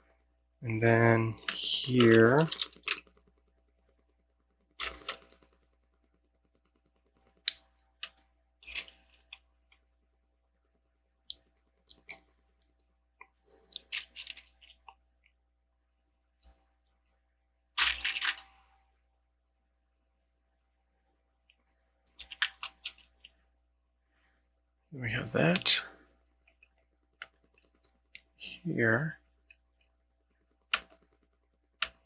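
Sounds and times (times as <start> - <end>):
plastic bricks clicking and clattering: 1.5 - 3.1.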